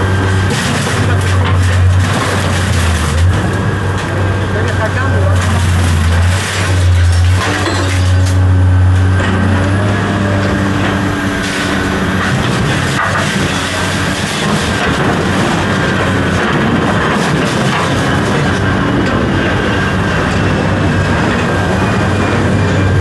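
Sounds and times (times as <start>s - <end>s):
engine hum: 0.0s - 23.0s
heavy diesel machinery running: 0.0s - 23.0s
metal rattling and clatter: 10.8s - 19.4s.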